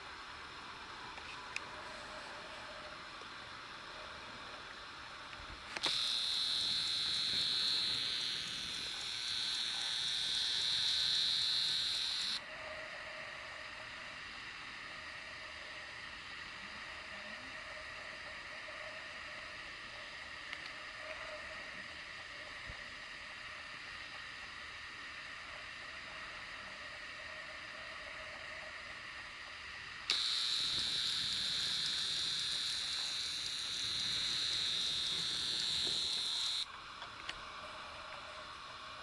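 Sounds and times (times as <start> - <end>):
faint hiss: 0.0 - 39.0
camera zoom motor whining: 5.7 - 12.4, 30.1 - 36.7.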